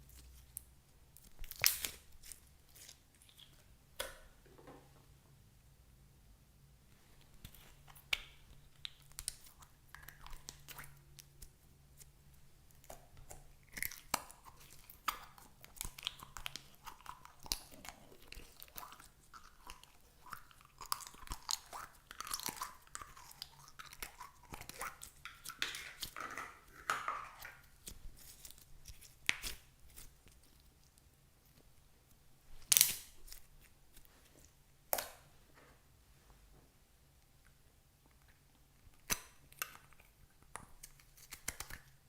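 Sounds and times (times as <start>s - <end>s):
slime crackling and popping: 1.2s - 3.6s, 12.7s - 31.0s, 32.6s - 33.7s, 39.0s - 42.0s.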